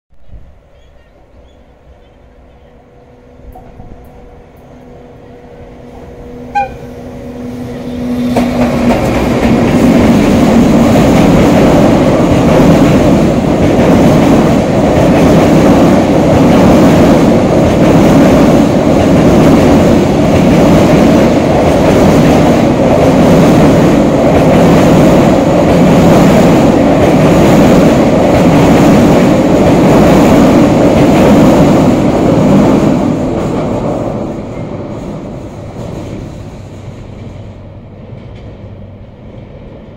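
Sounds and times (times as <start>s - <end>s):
train rumbling over bridge: 0.1s - 39.9s
locomotive horn: 2.8s - 8.5s.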